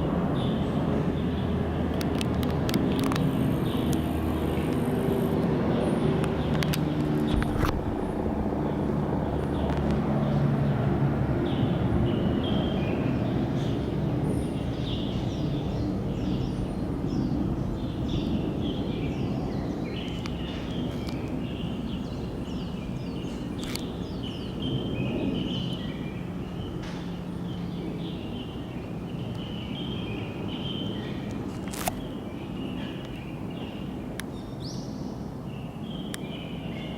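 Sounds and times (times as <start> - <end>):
small birds chirping: 0.4 - 36.9
low rumble: 7.2 - 11.2.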